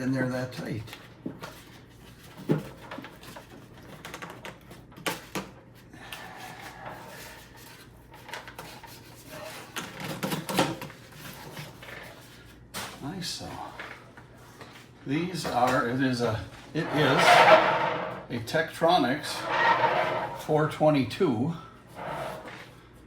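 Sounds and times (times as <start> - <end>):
cardboard and packing rustling: 0.7 - 17.4.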